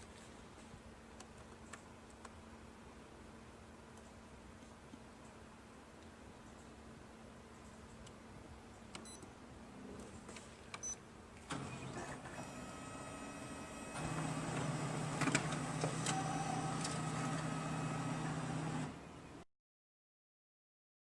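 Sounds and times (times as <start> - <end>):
laser printer running: 11.5 - 19.1.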